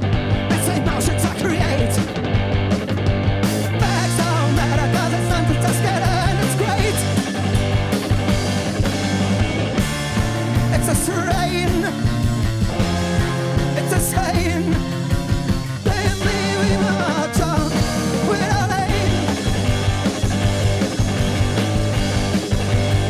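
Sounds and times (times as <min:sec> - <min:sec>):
live rock band playing: 0:00.0 - 0:23.0
person singing: 0:00.5 - 0:02.1, 0:03.8 - 0:07.2, 0:10.7 - 0:12.1, 0:13.7 - 0:14.9, 0:15.8 - 0:19.7.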